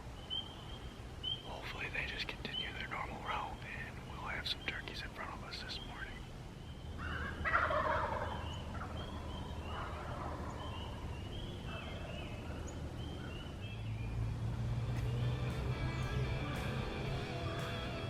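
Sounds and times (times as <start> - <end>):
turkey gobbling: 7.0 - 11.0.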